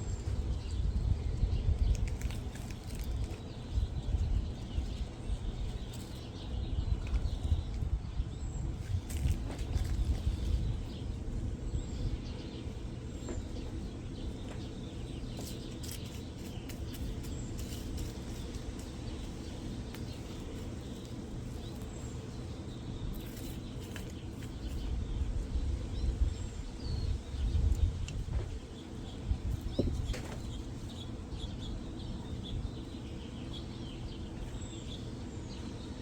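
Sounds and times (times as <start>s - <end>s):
low outdoor rumble: 0.0s - 36.0s.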